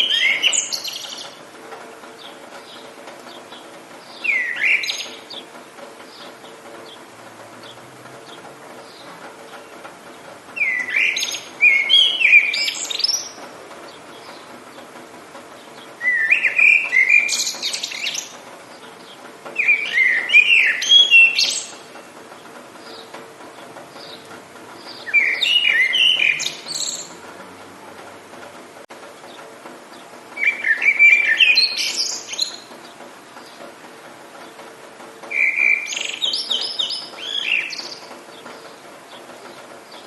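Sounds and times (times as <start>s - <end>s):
songbird warbling: 0.0s - 1.4s, 2.2s - 14.9s, 15.6s - 27.3s, 30.0s - 33.6s, 35.3s - 40.0s
faint steady background noise: 0.0s - 40.0s.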